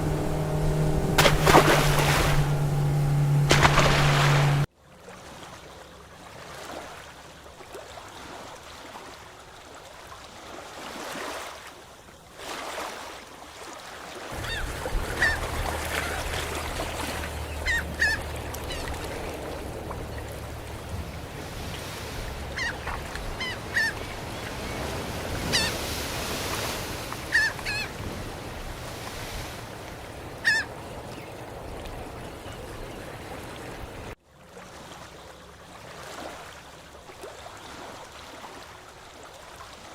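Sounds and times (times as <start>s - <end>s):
birds calling: 0.0s - 4.6s, 14.4s - 25.8s
low steady hum: 0.0s - 4.7s, 14.4s - 24.6s
surf: 0.0s - 4.7s, 14.3s - 30.0s
wind: 0.0s - 39.9s.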